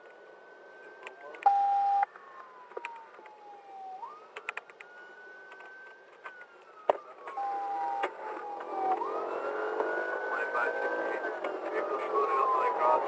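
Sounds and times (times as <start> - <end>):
police siren wailing: 0.0 - 13.0
short electronic beep: 1.5 - 2.0.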